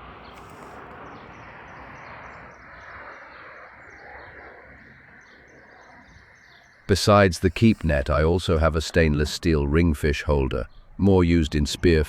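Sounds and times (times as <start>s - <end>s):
small bird chirping: 0.2s - 9.6s.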